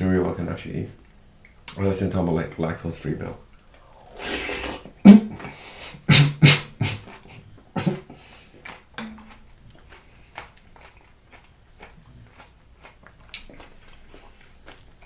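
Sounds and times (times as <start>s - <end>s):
slurping: 3.8s - 11.0s
chewing: 6.8s - 15.0s.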